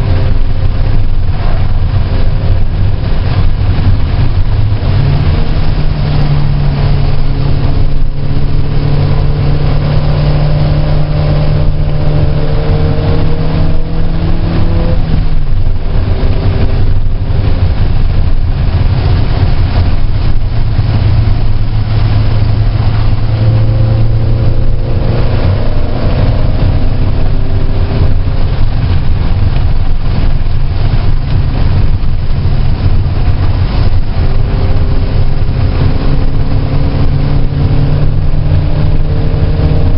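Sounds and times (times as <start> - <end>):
car engine running hard: 0.0 - 39.9
wind and road noise: 0.0 - 39.9.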